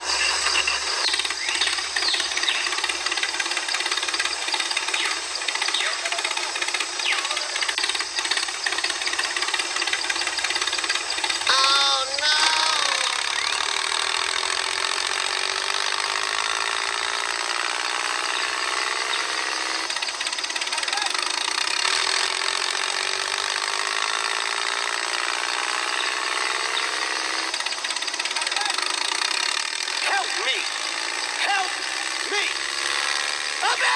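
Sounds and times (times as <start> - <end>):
tractor engine knocking: 0.0 - 18.9, 19.8 - 26.4, 27.5 - 32.5
voice-like call: 11.5 - 13.6.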